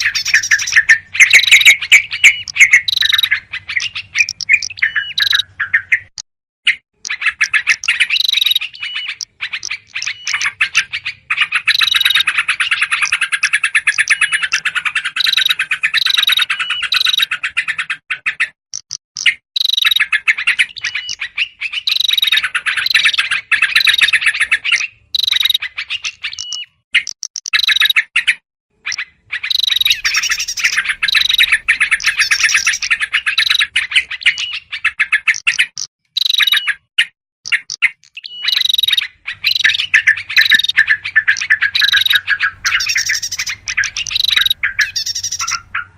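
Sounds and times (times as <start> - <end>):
bird alarm chatter: 0.0 - 45.9
small birds high notes: 29.4 - 34.7, 38.2 - 45.9.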